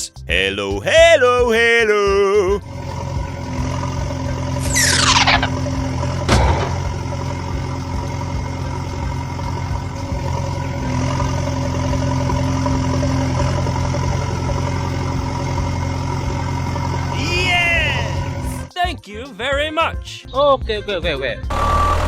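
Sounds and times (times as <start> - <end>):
tractor engine idling: 0.0 - 18.7
sharp knock: 6.3 - 6.9.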